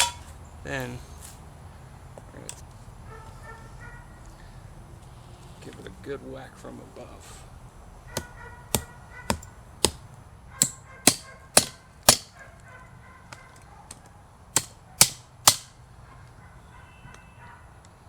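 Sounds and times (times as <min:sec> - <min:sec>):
hammer striking metal: 0:00.0 - 0:00.3, 0:10.6 - 0:12.4, 0:14.6 - 0:15.8.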